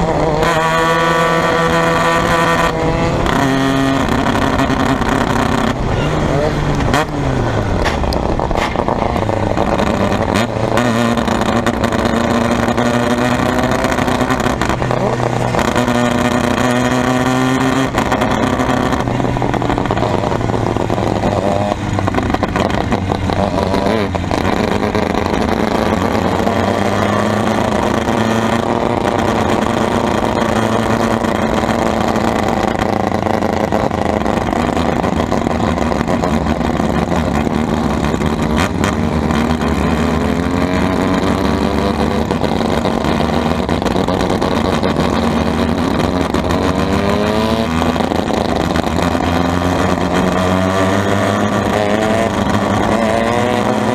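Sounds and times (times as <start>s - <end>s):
race car engine revving: 0.0s - 53.9s.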